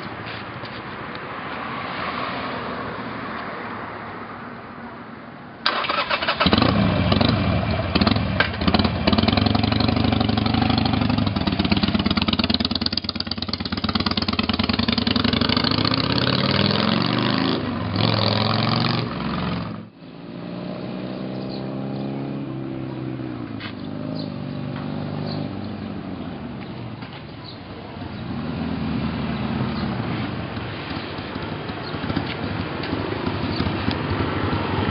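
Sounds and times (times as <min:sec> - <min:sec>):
motorcycle engine revving: 0:05.7 - 0:26.6, 0:28.1 - 0:34.9.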